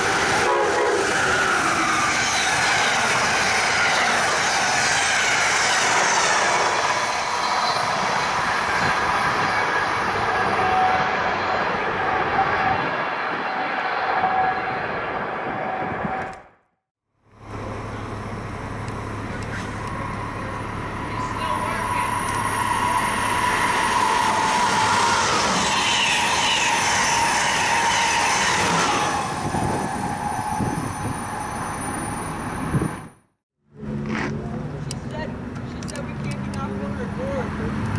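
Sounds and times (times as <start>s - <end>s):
train wheels rumbling on rails: 0.0s - 16.4s, 17.5s - 33.2s.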